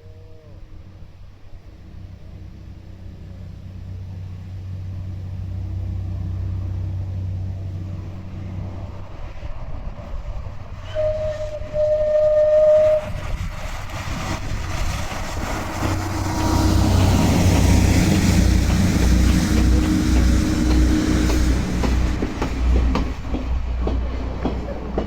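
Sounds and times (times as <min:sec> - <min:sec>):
train engine rumble: 0:00.0 - 0:25.0
wheels on rails: 0:08.5 - 0:25.0.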